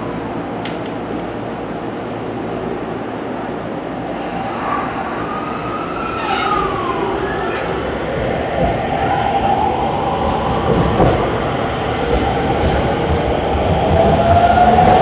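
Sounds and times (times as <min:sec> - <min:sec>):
train rail rumble: 0:03.8 - 0:15.0.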